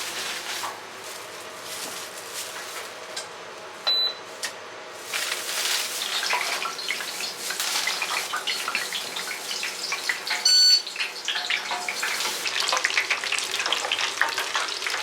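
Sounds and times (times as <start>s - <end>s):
loud electronic beep: 10.5s - 10.8s.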